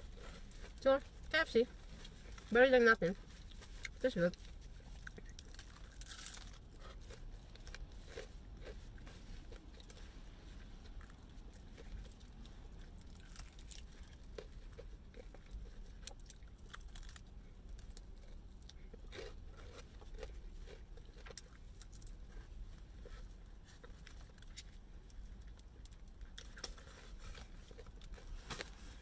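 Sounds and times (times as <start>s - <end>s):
person chewing: 0.0s - 2.5s, 3.2s - 29.0s
tearing and crunching meat: 3.3s - 10.2s, 10.8s - 22.7s.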